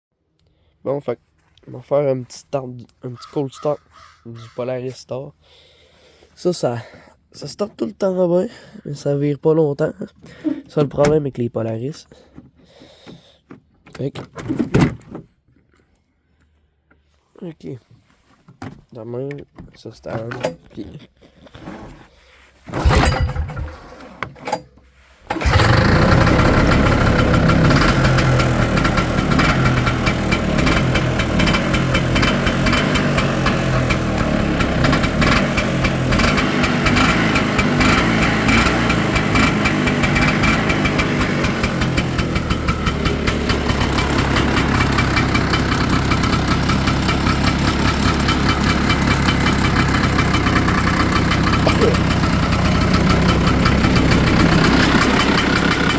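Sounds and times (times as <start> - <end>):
engine starting and idling: 22.7 - 24.7, 25.3 - 55.9.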